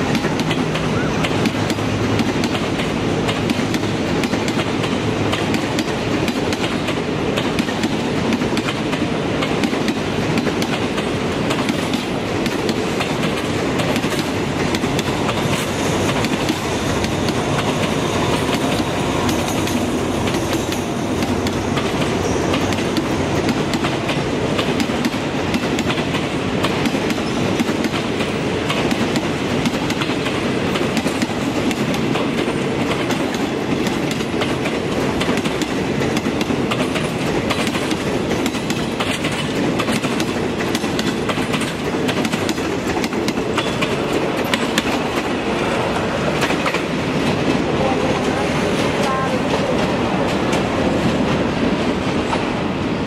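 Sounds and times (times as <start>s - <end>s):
train wheels clickety-clack: 0.0s - 53.0s.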